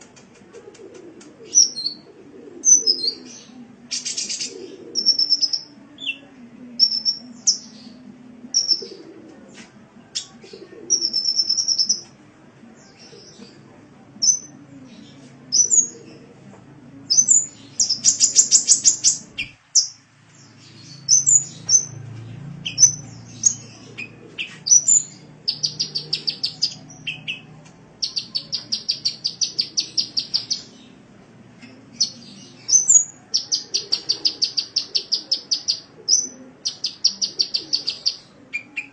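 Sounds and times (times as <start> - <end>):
sunbird chirps and trills: 24.6 - 30.8.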